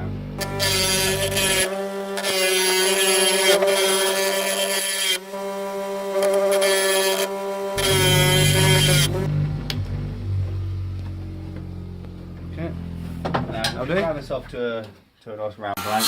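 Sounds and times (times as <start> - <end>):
wood lathe motor whine: 0.0 - 13.1
chisel cutting spinning wood: 0.4 - 9.8.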